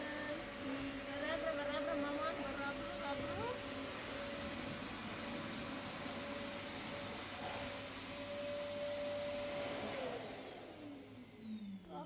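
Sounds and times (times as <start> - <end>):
motor whining and spinning down: 8.1 - 12.0.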